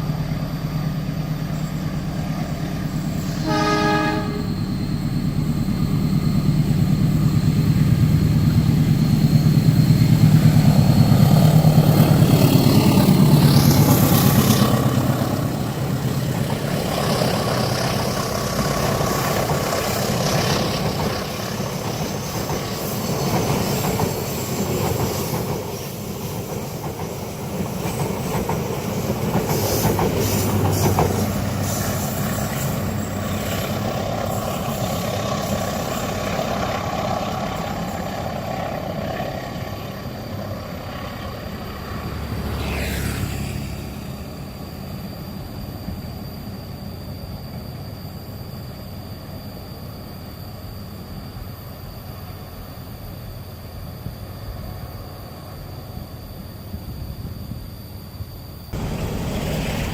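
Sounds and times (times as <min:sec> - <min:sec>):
train wheels clattering on track: 0:05.4 - 0:40.0, 0:58.8 - 0:59.9.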